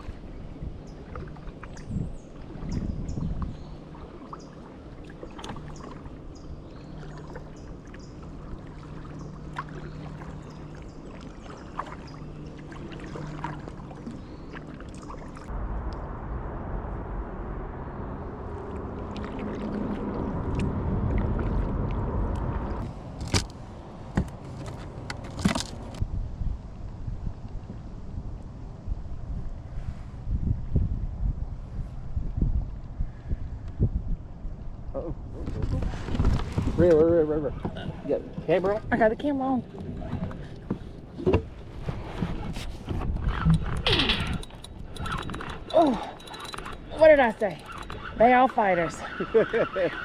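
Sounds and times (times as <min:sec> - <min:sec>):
wind noise on microphone: 0:00.0 - 0:04.0, 0:25.4 - 0:48.6.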